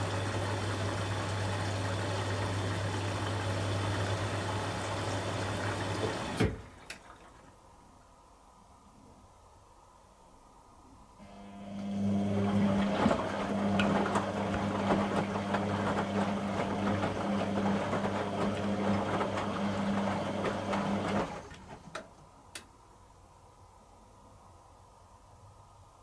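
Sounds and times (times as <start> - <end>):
washing machine humming and rattling: 0.0 - 7.8, 11.2 - 22.5.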